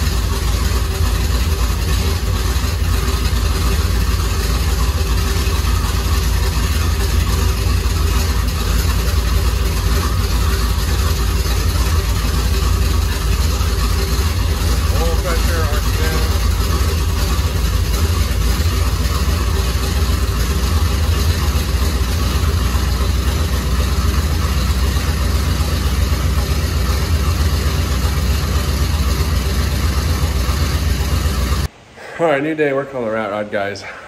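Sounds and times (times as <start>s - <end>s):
engine idling heard from cab: 0.0s - 31.8s.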